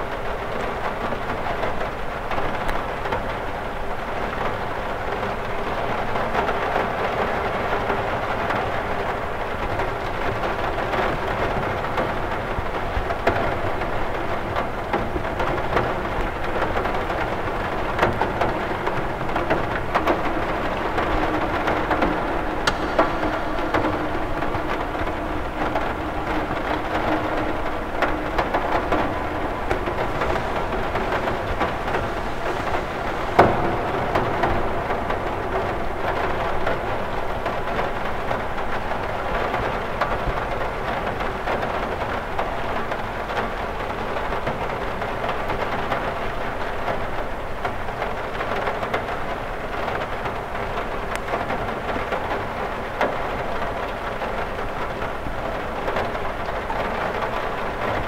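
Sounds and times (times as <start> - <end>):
rain pattering on window glass: 0.0 - 58.0
sharp tap: 22.6 - 25.1.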